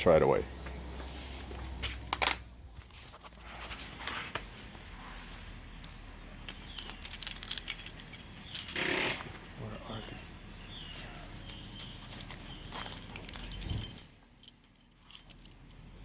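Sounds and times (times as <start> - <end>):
keys jangling: 6.5 - 8.8, 12.2 - 16.0.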